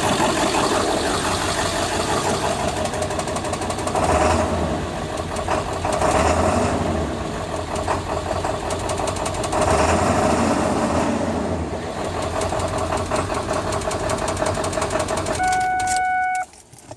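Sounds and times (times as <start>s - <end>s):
diesel engine idling roughly: 0.0s - 15.4s
steady beep: 15.4s - 16.5s.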